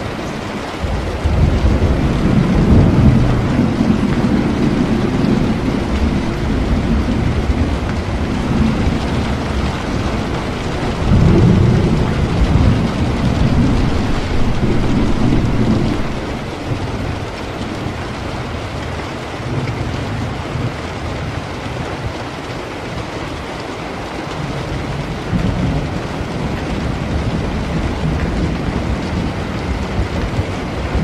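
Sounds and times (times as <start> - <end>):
rolling thunder: 0.0 - 22.2
steady rain: 0.0 - 31.0.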